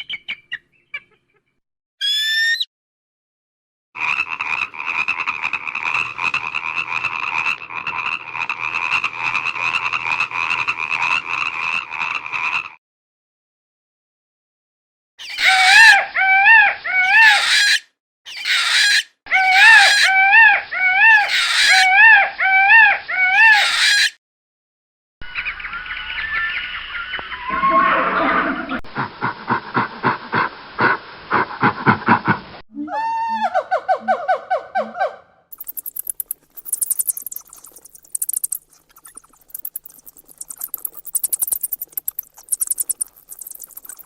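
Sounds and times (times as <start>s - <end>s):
repeated pitched animal calls: 2.0s - 2.7s, 15.2s - 24.2s, 32.8s - 44.0s
rapid pulsing animal call: 15.2s - 24.1s, 32.8s - 44.0s.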